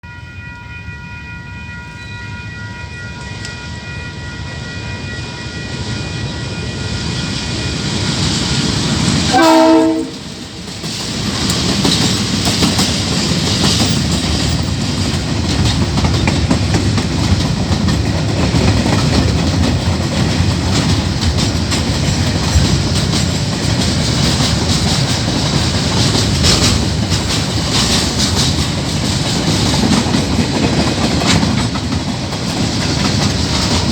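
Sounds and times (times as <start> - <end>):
freight train rumbling: 0.0 - 33.9
wheels clacking on rail joints: 7.8 - 33.9
train horn chord: 9.3 - 10.4.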